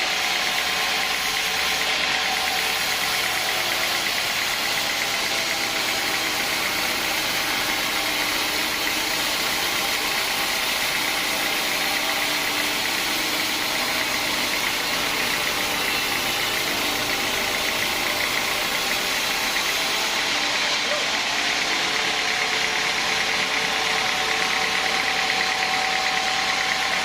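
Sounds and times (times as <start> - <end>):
sawmill machinery drone: 0.0 - 27.0.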